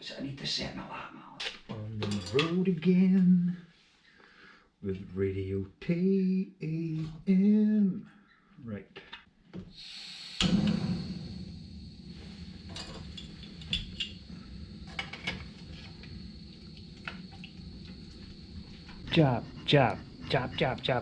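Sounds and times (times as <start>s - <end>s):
gas stove hissing and burning: 9.6s - 21.0s.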